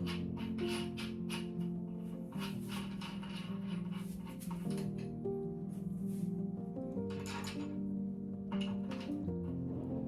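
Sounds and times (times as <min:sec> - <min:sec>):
music with sustained chords and beat: 0:04.0 - 0:10.0.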